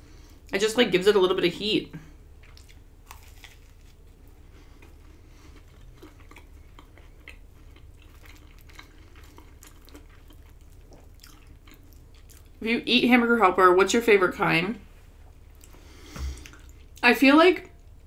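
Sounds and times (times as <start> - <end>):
steady low hum: 0.0 - 18.0
faint close-up chewing: 2.0 - 12.6, 15.3 - 17.0.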